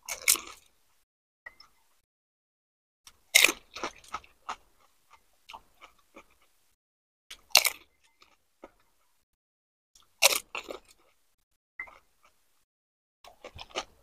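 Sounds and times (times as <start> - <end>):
crunchy chewing of crisp shell: 0.0 - 1.0, 3.1 - 9.3, 10.0 - 12.7, 13.3 - 14.0.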